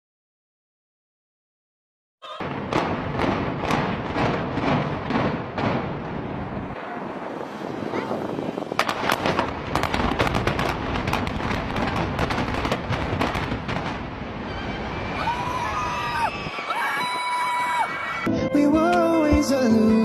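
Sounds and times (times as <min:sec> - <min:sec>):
sharp bangs and cracks: 0:02.4 - 0:07.8, 0:08.6 - 0:15.1
continuous rumbling: 0:02.4 - 0:16.2.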